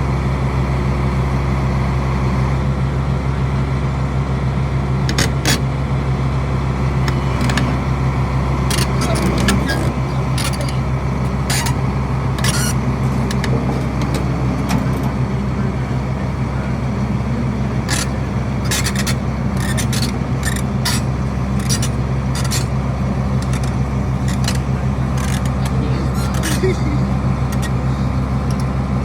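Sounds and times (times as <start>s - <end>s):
truck engine humming: 0.0s - 29.0s
sharp clicks and rattles: 6.9s - 11.8s, 12.4s - 28.8s.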